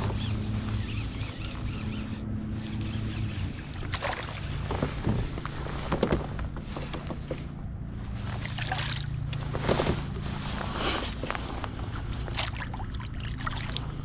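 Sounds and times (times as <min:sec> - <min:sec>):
steady low hum: 0:00.0 - 0:14.0
water splashing: 0:03.6 - 0:05.0, 0:08.4 - 0:09.5, 0:12.2 - 0:14.0.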